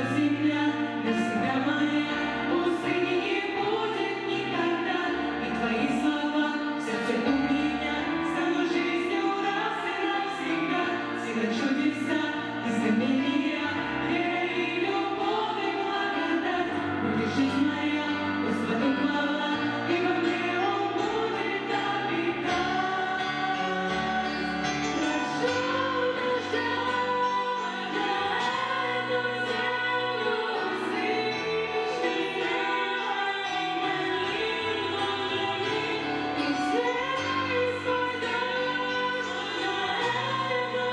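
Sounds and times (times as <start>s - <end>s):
choir singing slow melody: 19.5s - 40.9s.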